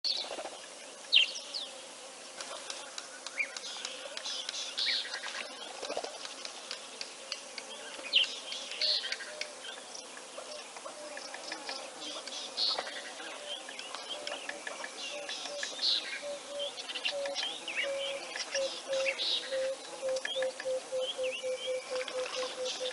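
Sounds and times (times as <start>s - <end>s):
birds whistling and chirping: 13.4s - 22.9s.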